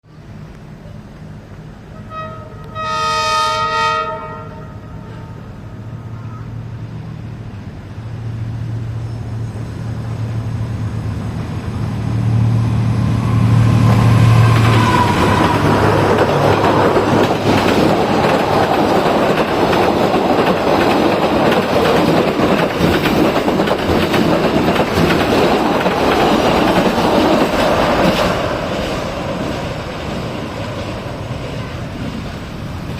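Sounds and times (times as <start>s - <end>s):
locomotive engine rumbling: 0.1s - 32.9s
train wheels clattering on rails: 13.5s - 32.9s.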